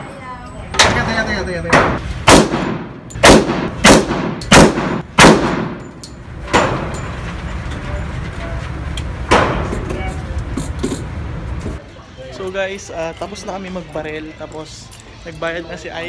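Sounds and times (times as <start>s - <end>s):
handgun shots: 1.7s - 5.8s.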